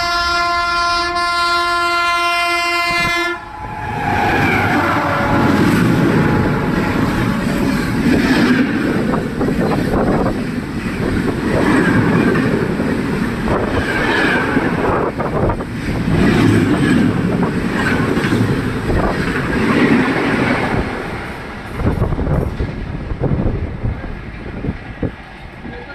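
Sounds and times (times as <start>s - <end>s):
train wheels roaring on rails: 0.0s - 25.9s
train wheels clickety-clack: 7.0s - 25.9s.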